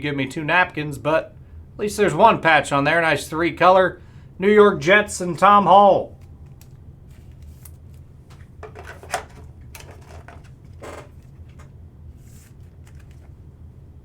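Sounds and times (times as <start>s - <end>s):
steady low hum: 0.0s - 14.0s
cards clicking and scraping: 6.2s - 13.3s.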